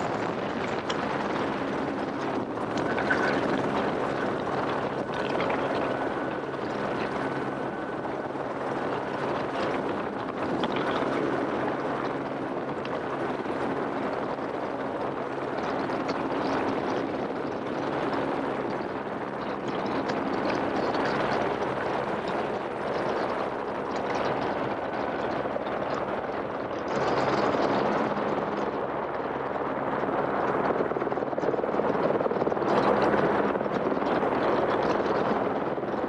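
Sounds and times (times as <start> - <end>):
helicopter engine and rotor: 0.0 - 19.4, 25.4 - 34.7.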